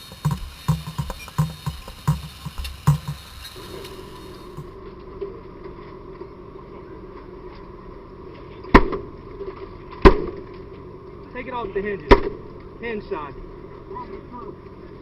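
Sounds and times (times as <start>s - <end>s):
hand tool striking a door: 0.0s - 3.4s
steady hum: 0.0s - 5.6s.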